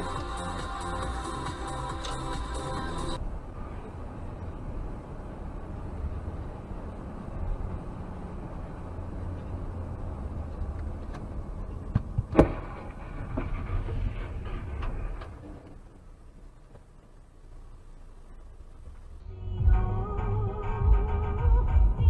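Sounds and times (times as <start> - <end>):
car road rumble: 0.0 - 22.0
car crash: 11.9 - 15.8.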